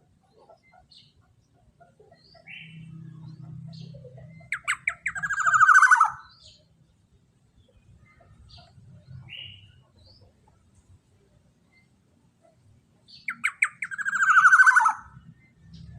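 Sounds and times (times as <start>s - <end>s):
bird rapid trill: 3.7s - 6.4s, 13.2s - 15.2s
short bird chirps: 3.7s - 6.6s.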